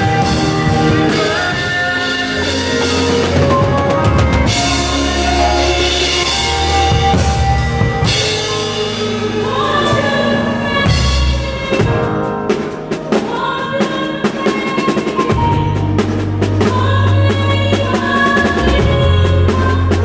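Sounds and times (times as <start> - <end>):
heavy bass note: 0.0 - 11.5
drum kit fills: 0.0 - 20.0
worship band music: 0.0 - 20.0.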